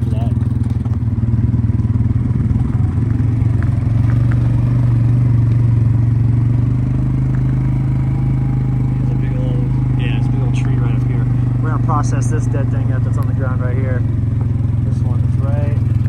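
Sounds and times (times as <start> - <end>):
quad bike engine running: 0.0 - 16.0.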